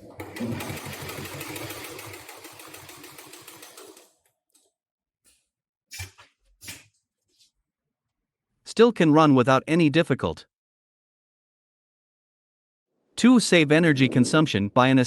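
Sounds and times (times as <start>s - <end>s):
industrial sewing machine stitching: 0.0s - 4.2s.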